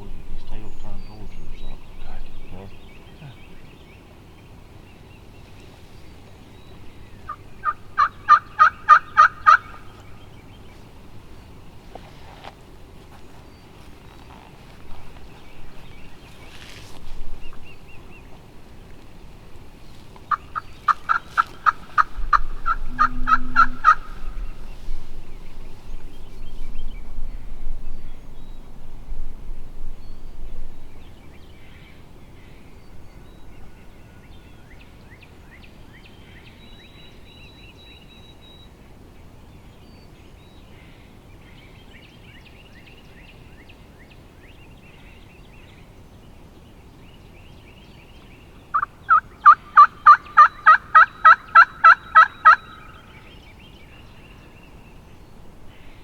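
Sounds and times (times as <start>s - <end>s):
low rumble: 0.0s - 3.7s, 21.8s - 31.6s
faint songbird chirps: 0.0s - 56.0s
turkey yelping: 7.3s - 9.8s, 20.5s - 24.5s, 48.7s - 53.0s
rustling: 11.8s - 26.6s.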